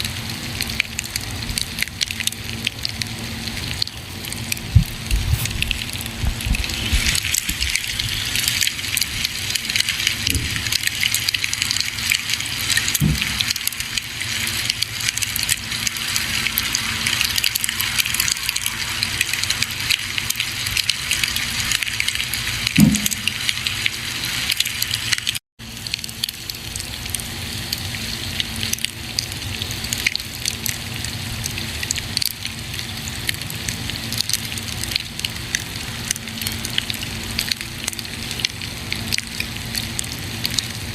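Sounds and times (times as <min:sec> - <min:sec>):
campfire crackling: 0:00.2 - 0:27.8
fire popping: 0:00.9 - 0:24.0.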